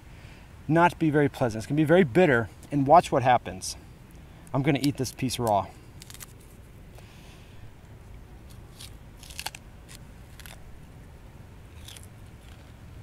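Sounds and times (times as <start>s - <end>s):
crisp crunches: 5.9s - 6.6s, 8.4s - 10.7s, 11.7s - 12.8s
person biting and chewing: 5.9s - 6.6s, 8.4s - 10.8s, 11.7s - 13.0s.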